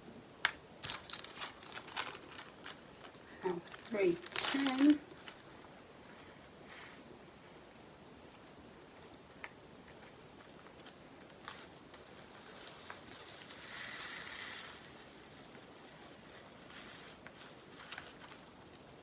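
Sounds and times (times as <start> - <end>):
plastic beads pouring into container: 11.5 - 15.5.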